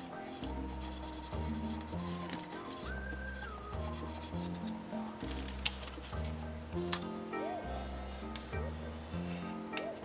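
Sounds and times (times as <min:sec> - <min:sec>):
background music with chords: 0:00.0 - 0:10.0.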